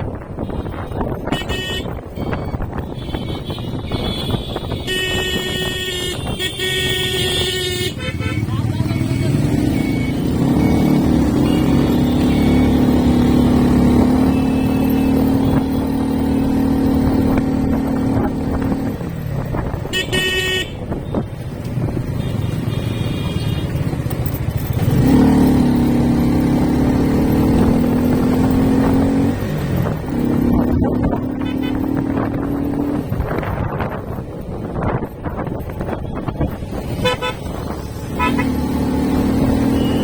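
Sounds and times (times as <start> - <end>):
motorcycle engine running: 0.0 - 40.0
vehicle horn beeping: 0.4 - 10.2, 11.3 - 13.0, 19.9 - 21.2, 22.2 - 23.8, 31.4 - 32.0, 37.0 - 37.5, 38.1 - 38.6, 39.6 - 40.0.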